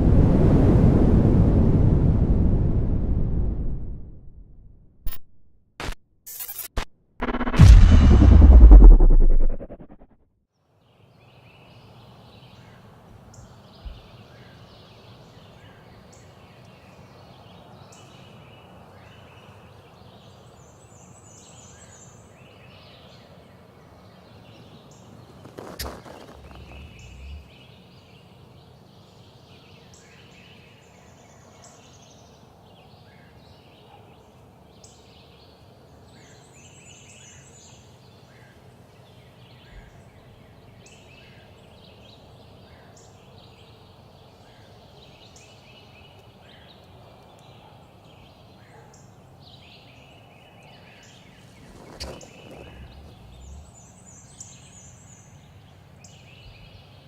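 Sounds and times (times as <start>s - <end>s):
sharp click: 5.1s - 10.0s
low thumps: 7.2s - 10.1s, 26.2s - 27.5s
songbirds chirping and trilling: 10.9s - 57.0s.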